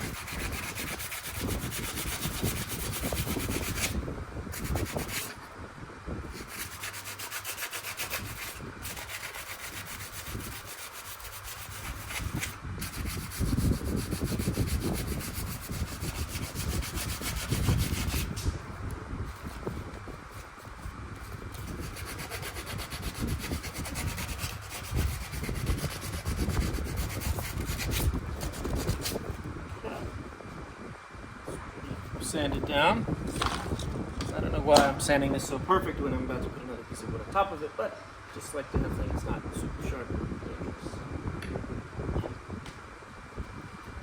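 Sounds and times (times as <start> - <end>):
wood being sanded: 0.0 - 4.0, 4.6 - 5.4, 6.3 - 18.4, 19.3 - 29.3.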